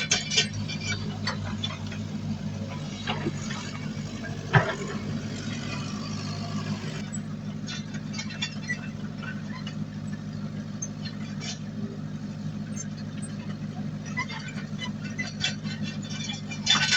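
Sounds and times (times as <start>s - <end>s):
loud metal clank: 0.0s - 7.0s
diesel engine running: 0.0s - 16.9s.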